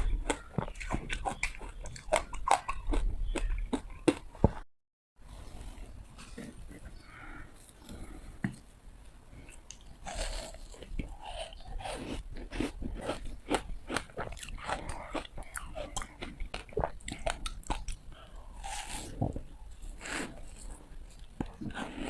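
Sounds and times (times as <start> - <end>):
teeth crunching hard ice: 0.0 - 4.3.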